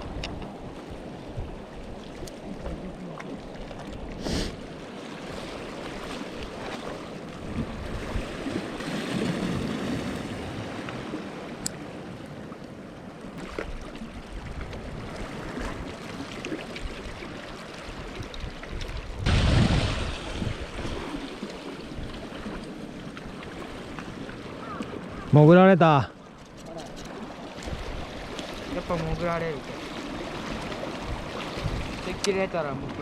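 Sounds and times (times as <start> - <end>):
seawater lapping and sloshing: 0.0 - 33.0
wind on microphone: 7.4 - 10.9, 13.6 - 16.0, 16.6 - 24.2, 27.1 - 29.4, 30.1 - 33.0.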